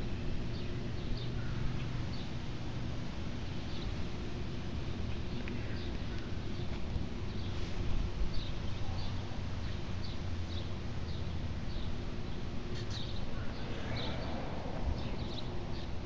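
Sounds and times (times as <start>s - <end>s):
low outdoor rumble: 0.0s - 16.0s
small bird chirping: 8.3s - 14.4s.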